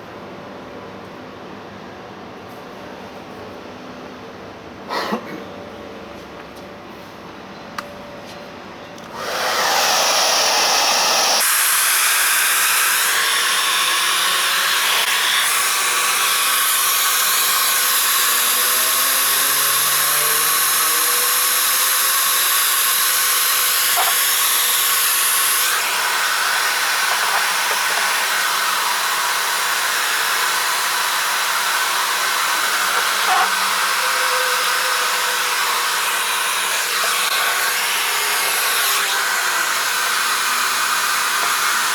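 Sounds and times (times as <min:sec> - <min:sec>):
hair dryer blowing: 0:09.0 - 0:41.9.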